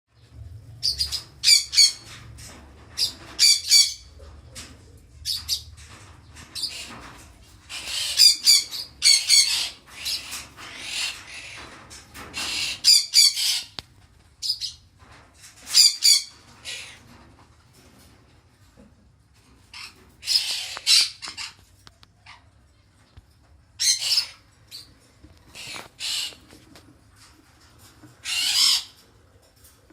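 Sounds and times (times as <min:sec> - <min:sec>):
bird harsh raspy calls: 0:00.8 - 0:02.1, 0:07.6 - 0:11.7, 0:12.4 - 0:13.8, 0:19.7 - 0:21.6, 0:23.8 - 0:24.9, 0:25.5 - 0:26.4, 0:28.2 - 0:29.0.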